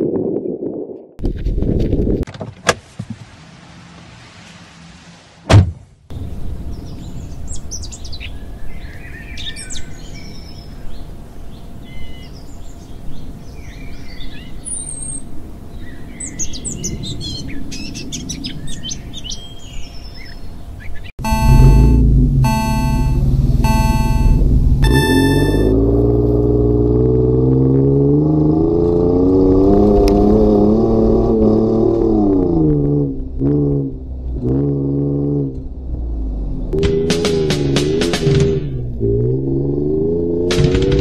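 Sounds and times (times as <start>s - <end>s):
loud thump: 5.4s - 6.0s
small birds chirping: 6.7s - 21.2s.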